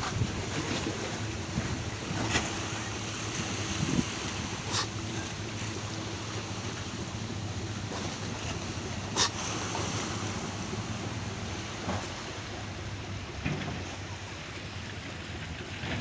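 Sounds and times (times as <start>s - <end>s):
wind on microphone: 0.0s - 5.7s
ferry engine humming: 0.0s - 16.0s
waves against ship: 0.0s - 16.0s.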